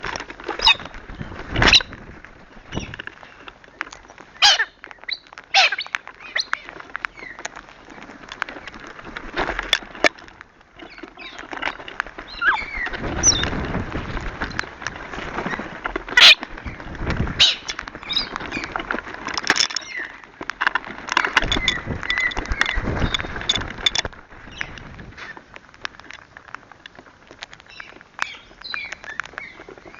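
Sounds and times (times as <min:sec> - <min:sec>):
parrots squawking and chattering: 0:00.6 - 0:00.9, 0:04.4 - 0:07.4, 0:12.3 - 0:13.5, 0:16.1 - 0:16.8, 0:17.4 - 0:18.8
sharp clicks and knocks: 0:02.7 - 0:29.5.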